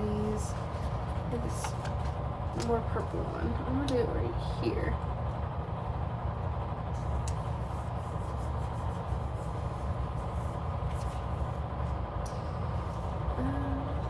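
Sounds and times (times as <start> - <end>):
paper and stickers handled: 0.0 - 3.4, 7.0 - 12.0.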